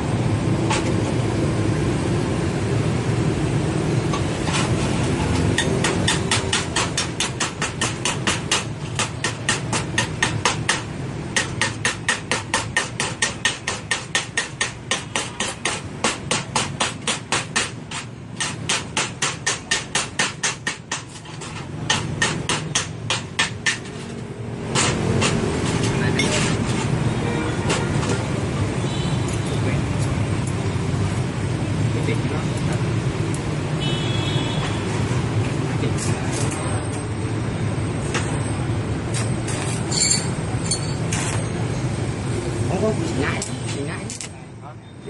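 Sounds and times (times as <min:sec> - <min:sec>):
steady noise: 0:00.0 - 0:12.3
hammer striking metal: 0:05.6 - 0:25.4, 0:39.1 - 0:41.4.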